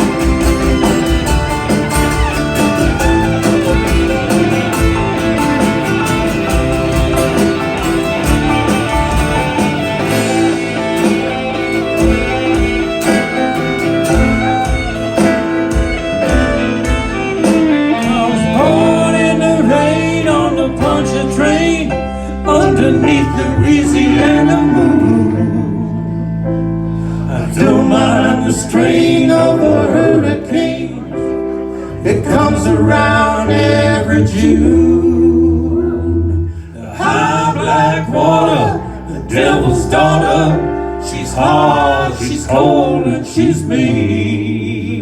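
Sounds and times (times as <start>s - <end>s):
steady drum beat: 0.0s - 19.0s
lead guitar bending notes: 0.0s - 29.2s.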